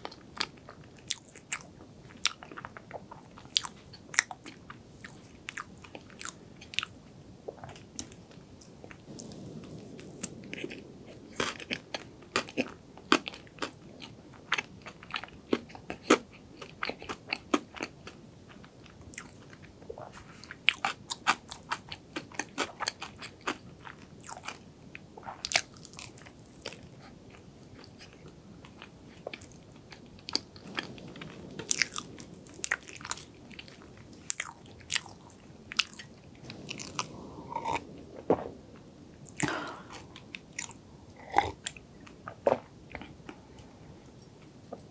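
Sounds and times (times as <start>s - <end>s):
wet chewing with mouth clicks: 7.5s - 24.6s, 25.2s - 43.4s.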